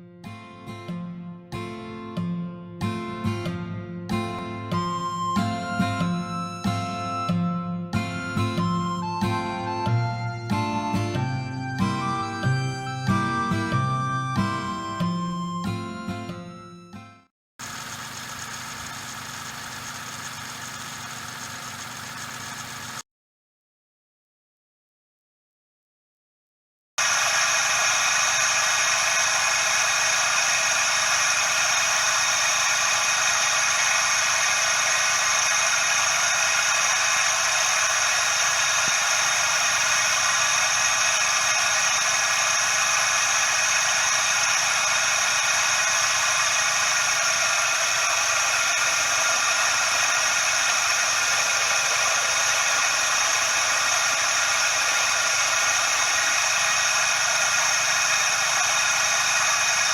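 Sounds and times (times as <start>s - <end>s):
car engine running: 17.6s - 23.0s, 27.0s - 59.9s
pulley bearing whirring and whining: 17.6s - 23.0s, 27.0s - 59.9s.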